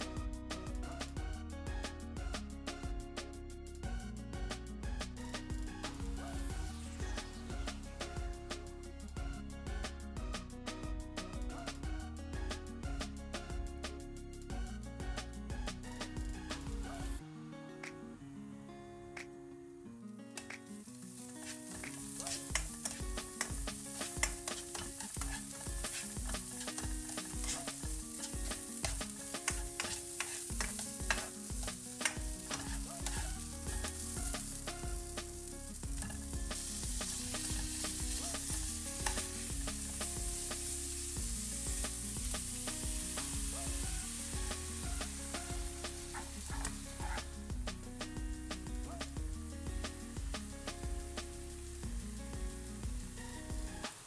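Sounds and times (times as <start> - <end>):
garlic sizzling in hot oil: 20.4 - 54.0
spatula stirring and scraping: 21.1 - 35.0.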